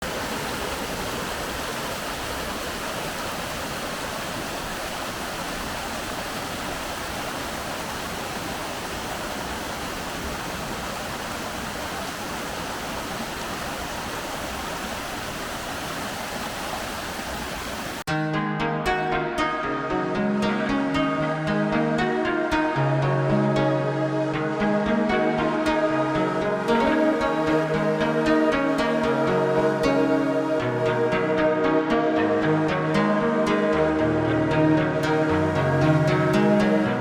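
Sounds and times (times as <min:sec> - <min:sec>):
waterfall rushing: 0:00.0 - 0:18.1, 0:20.0 - 0:37.0
music with plucked notes: 0:18.1 - 0:37.0.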